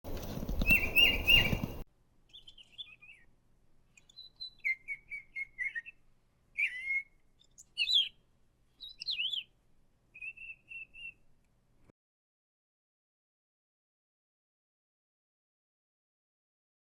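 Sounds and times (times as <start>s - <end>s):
parrot chirping: 0.6s - 3.3s.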